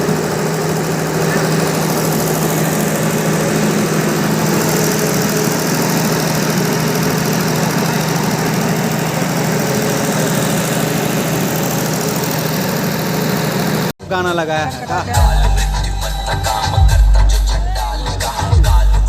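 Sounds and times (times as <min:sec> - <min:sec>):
diesel generator running: 0:00.0 - 0:19.0.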